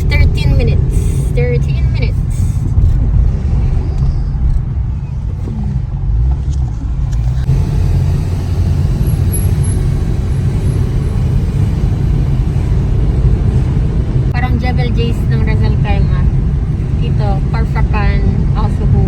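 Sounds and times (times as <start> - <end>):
car driving heard from inside: 0.0 - 19.0.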